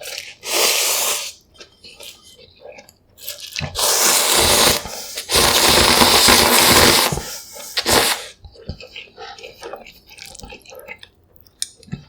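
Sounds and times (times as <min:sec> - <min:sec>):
loud slurping of noodles: 0:00.2 - 0:01.4, 0:03.8 - 0:08.4.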